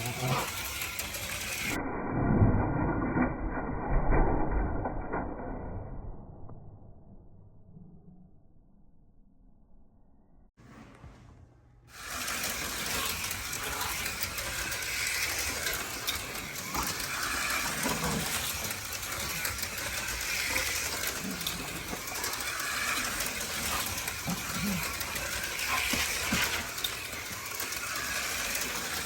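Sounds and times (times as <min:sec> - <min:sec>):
slot car motors whining: 0:00.0 - 0:01.8, 0:11.9 - 0:29.0
slot cars rattling in track: 0:00.0 - 0:01.8, 0:11.9 - 0:29.0.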